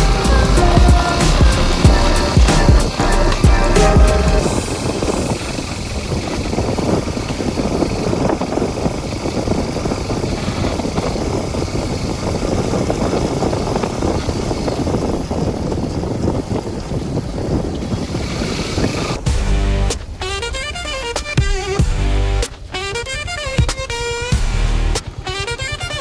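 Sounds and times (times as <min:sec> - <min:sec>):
vehicle rumbling: 0:00.0 - 0:26.0
wind buffeting microphone: 0:00.0 - 0:26.0.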